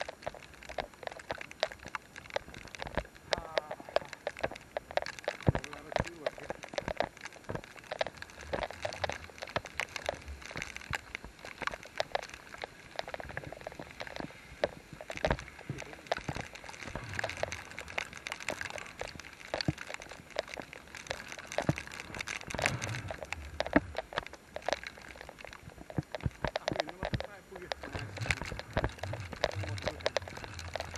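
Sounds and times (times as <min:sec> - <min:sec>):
rain pattering and splashing: 0:00.0 - 0:30.9.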